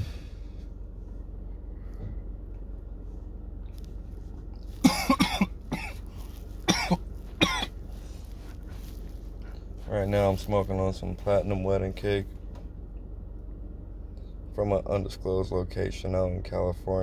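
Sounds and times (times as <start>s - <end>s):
man coughing: 4.8s - 6.0s, 6.7s - 7.8s.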